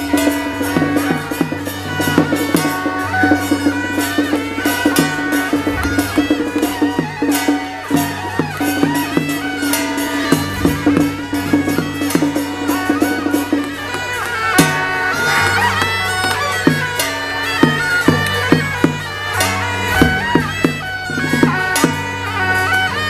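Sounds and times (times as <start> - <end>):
percussion strikes: 0.0 - 23.0
reedy wind instrument melody: 0.0 - 23.0.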